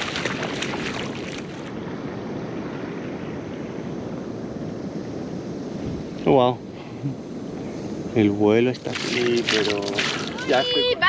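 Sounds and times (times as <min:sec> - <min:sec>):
water splashes: 0:00.0 - 0:01.7, 0:08.7 - 0:10.9
ocean surf rushing: 0:00.0 - 0:01.8, 0:08.6 - 0:11.0
wind on microphone: 0:00.0 - 0:06.2.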